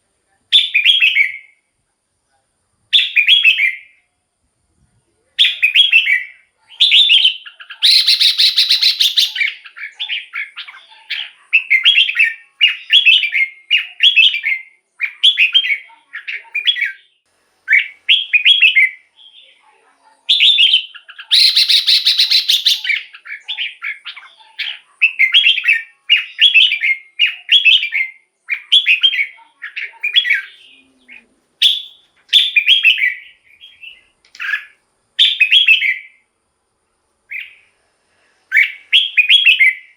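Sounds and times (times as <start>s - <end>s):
bird whistled phrases: 0.5s - 1.6s, 3.0s - 4.0s, 5.4s - 19.6s, 20.3s - 36.2s, 37.3s - 37.7s, 38.5s - 39.9s
bird harsh chatter: 6.8s - 13.0s, 20.3s - 27.9s.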